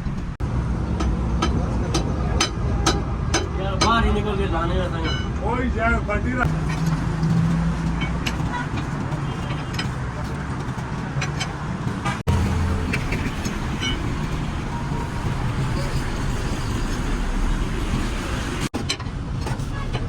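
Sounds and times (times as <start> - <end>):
traffic rumble and hiss: 0.0 - 20.0.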